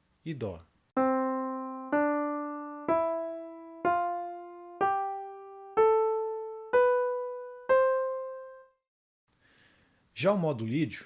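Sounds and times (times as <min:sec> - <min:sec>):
piano notes ascending: 0:01.0 - 0:08.8.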